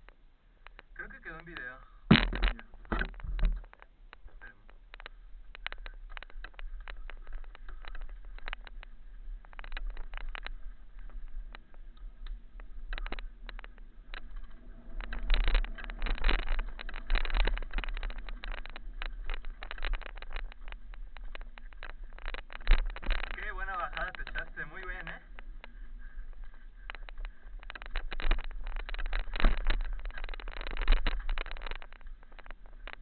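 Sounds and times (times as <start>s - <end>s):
bike rattling over stones: 0.0s - 33.0s
low rumble on microphone: 0.0s - 33.0s.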